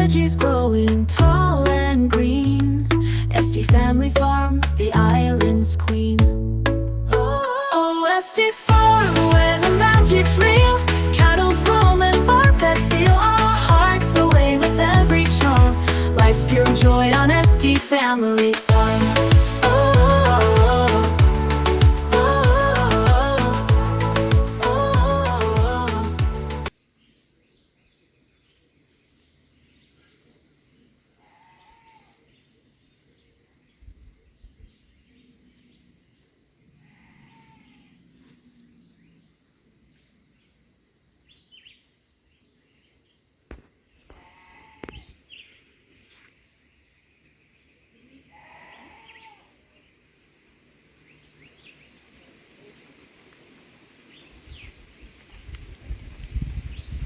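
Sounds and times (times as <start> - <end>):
low rumble: 0.0 - 7.4, 18.7 - 26.7
song playing: 0.0 - 7.8, 8.4 - 26.7
faint outdoor ambience: 0.0 - 57.0.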